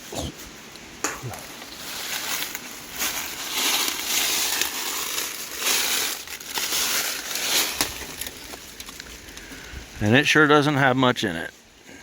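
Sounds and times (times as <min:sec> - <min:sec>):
footsteps crunching and rustling: 0:00.0 - 0:09.6.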